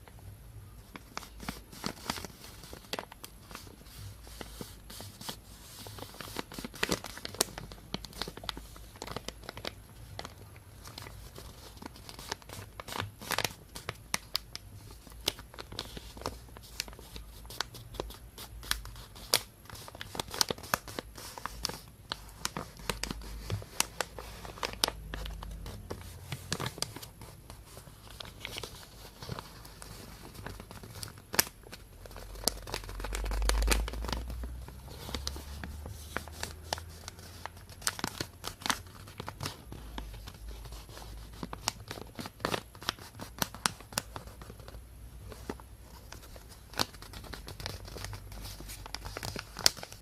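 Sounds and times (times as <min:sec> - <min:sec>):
plastic bag crinkling: 0:00.8 - 0:50.0.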